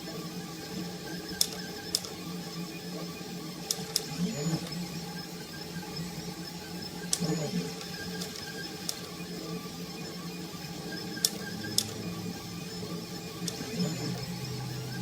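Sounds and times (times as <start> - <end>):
stepper motors humming: 10.8 - 15.0
sharp clicks: 13.4 - 14.3.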